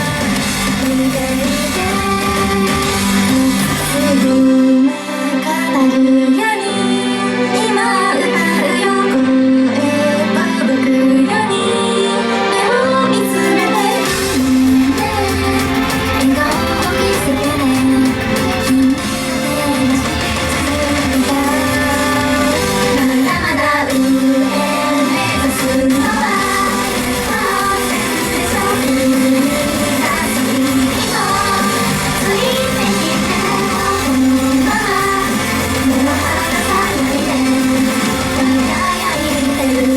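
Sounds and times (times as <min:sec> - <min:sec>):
loud pop accompaniment: 0:00.0 - 0:04.5, 0:14.0 - 0:39.9
women singing pop song: 0:00.0 - 0:39.9.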